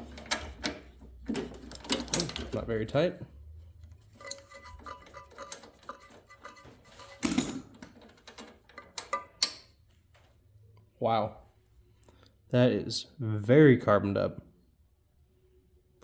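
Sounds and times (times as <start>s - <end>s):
metal clatter: 0.0s - 2.7s, 4.0s - 9.6s.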